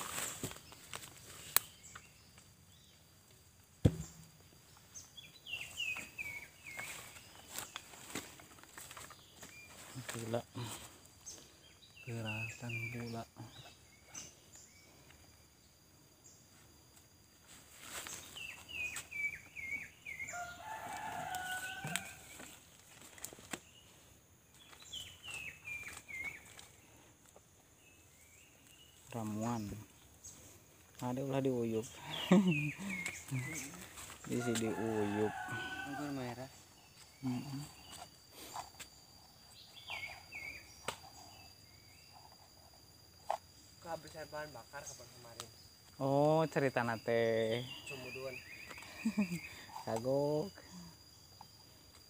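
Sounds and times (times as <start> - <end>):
forest ambience: 0.0 - 52.0
sharp knock: 3.8 - 4.3.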